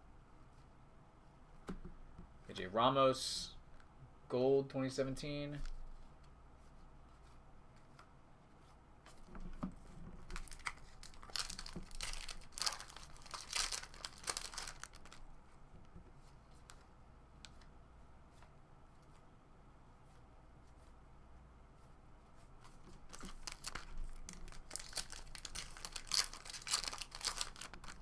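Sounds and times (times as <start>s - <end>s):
wrapper tearing and crinkling: 10.3s - 15.3s, 23.0s - 28.0s.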